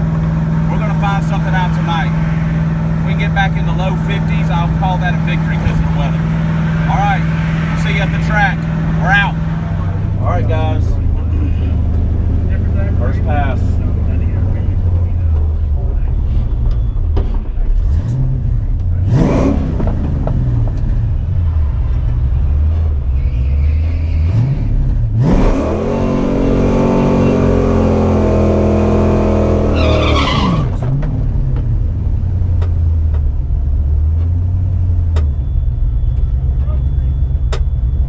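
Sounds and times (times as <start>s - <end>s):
car engine idling and revving: 0.0s - 38.0s.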